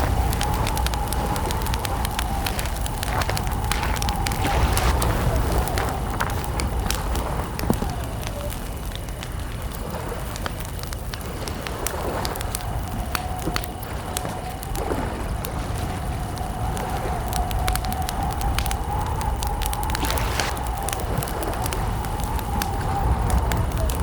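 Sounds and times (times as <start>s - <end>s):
low rumble: 0.0s - 8.2s, 13.8s - 24.0s
campfire crackling: 0.0s - 24.0s
thin whistling tone: 16.2s - 24.0s.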